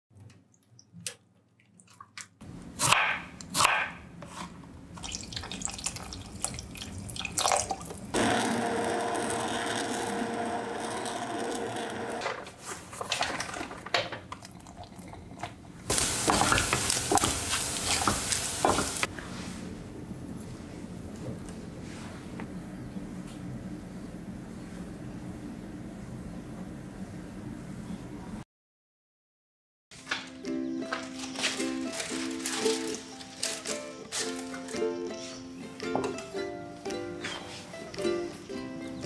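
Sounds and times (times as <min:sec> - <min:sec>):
immersion blender whirring: 0:08.2 - 0:12.5
hiss with crackles: 0:15.9 - 0:19.1.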